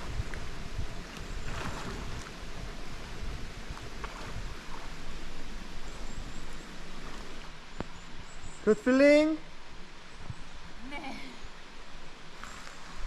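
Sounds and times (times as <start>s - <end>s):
stream water rushing: 0.0s - 13.0s
faint splashes: 1.1s - 2.5s.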